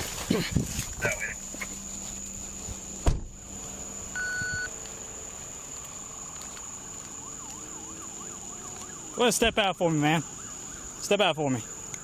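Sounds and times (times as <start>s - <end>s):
short electronic beep: 4.2s - 4.7s
faint police siren yelping: 6.8s - 9.5s.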